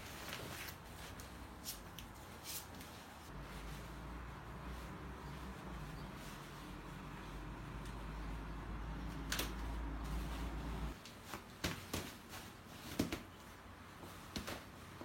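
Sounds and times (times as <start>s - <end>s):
low steady hum: 3.3s - 11.0s.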